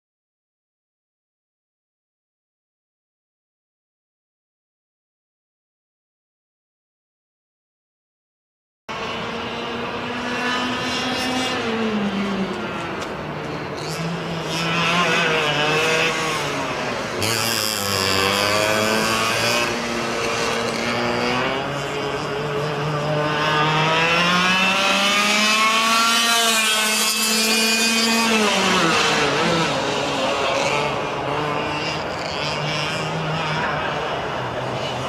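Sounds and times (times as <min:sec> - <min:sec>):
kart engine revving: 0:08.9 - 0:35.0.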